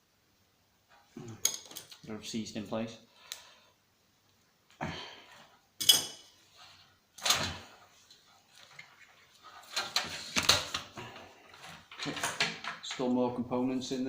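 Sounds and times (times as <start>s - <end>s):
plastic and metal parts clattering: 9.6s - 13.1s.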